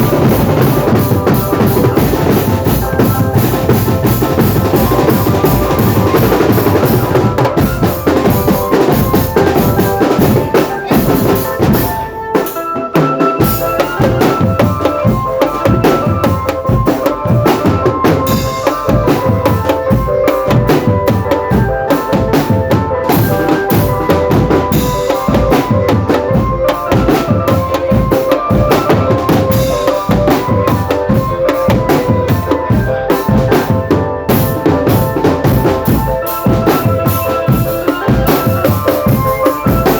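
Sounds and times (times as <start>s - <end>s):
held melody line: 0.0s - 39.9s
snare and bass drums: 0.0s - 39.9s.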